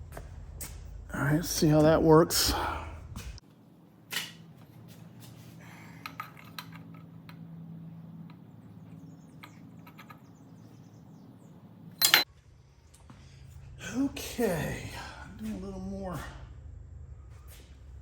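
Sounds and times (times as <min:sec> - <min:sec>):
low steady hum: 0:00.0 - 0:18.0
metal clicks and clinks: 0:12.0 - 0:12.3.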